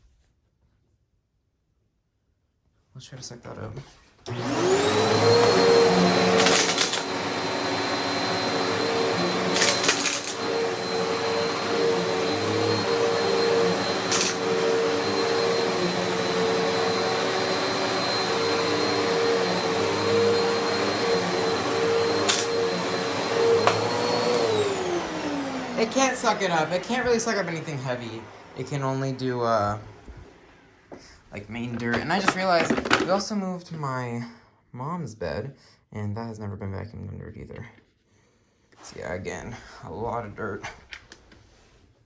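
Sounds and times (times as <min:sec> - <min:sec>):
vacuum cleaner motor whine: 0:04.3 - 0:33.2.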